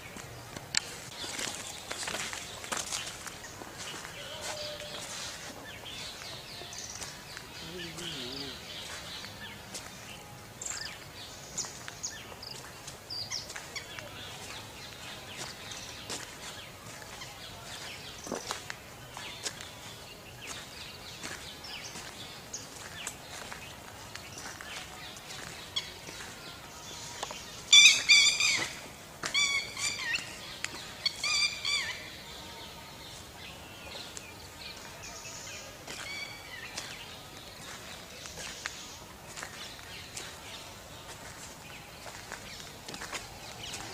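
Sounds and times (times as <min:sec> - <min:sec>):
birds chirping: 0:00.0 - 0:43.9
bird calling loudly: 0:27.7 - 0:30.2.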